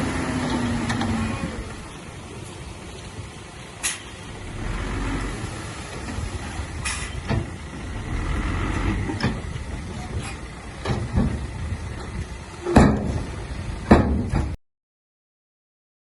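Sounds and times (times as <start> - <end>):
diesel engine rumbling: 0.0 - 14.6
sharp knocks: 13.9 - 14.6.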